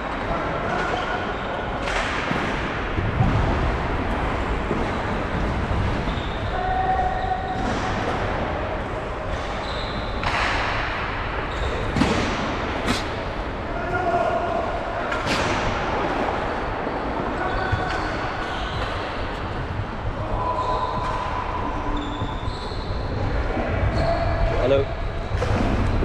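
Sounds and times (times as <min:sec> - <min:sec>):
wind rumble on microphone: 0:17.7 - 0:26.0.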